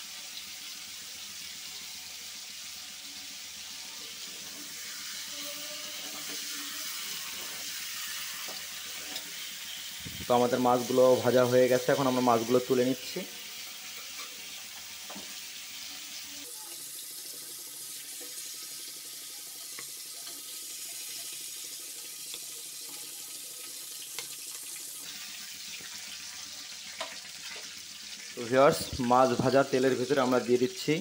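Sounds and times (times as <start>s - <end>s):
prawns sizzling in oil: 0.0s - 31.0s.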